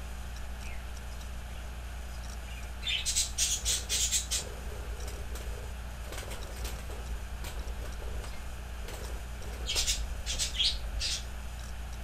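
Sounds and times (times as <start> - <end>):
low steady hum: 0.0 - 12.0
small bird chirping: 0.6 - 5.2, 9.4 - 11.4.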